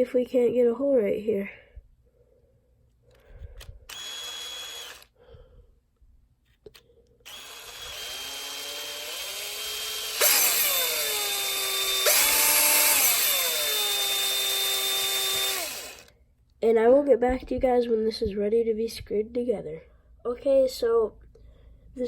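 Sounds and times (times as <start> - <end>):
electric drill whining: 3.5 - 5.2, 7.3 - 16.1.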